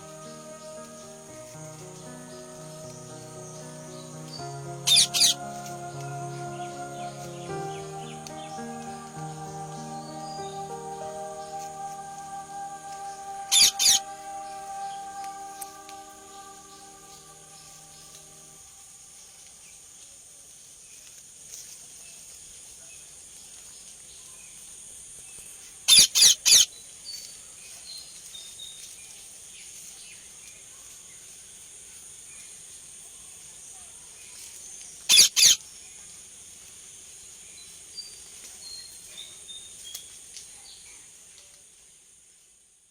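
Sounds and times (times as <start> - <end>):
small bird chirps: 0.0 - 18.6, 35.0 - 35.6
high-pitched insect drone: 0.0 - 19.0.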